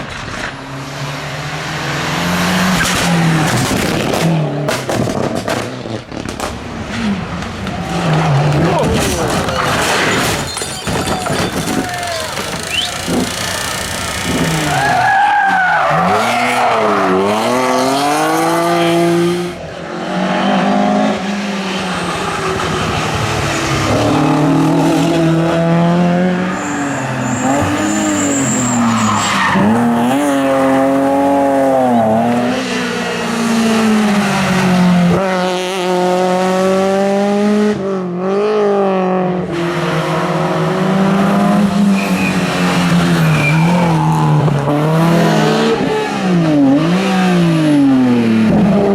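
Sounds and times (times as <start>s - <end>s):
rally car engine revving: 0.0s - 48.9s
tyre squeal: 9.7s - 17.2s, 26.5s - 30.6s, 41.9s - 44.2s.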